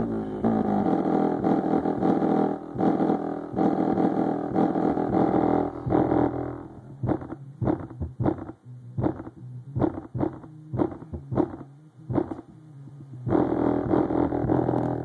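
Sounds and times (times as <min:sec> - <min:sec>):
distorted bass-heavy music: 0:00.0 - 0:15.0.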